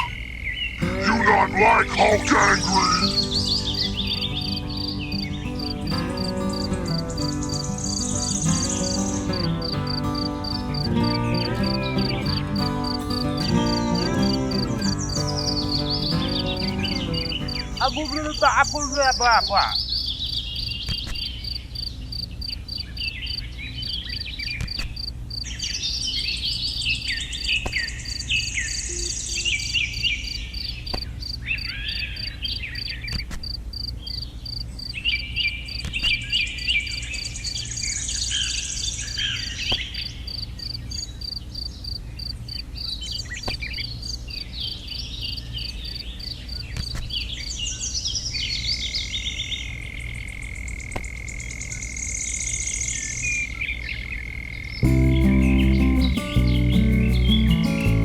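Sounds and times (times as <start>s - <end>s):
birds chirping and singing: 0.7s - 21.4s, 54.8s - 58.0s
insect trill: 1.6s - 17.8s.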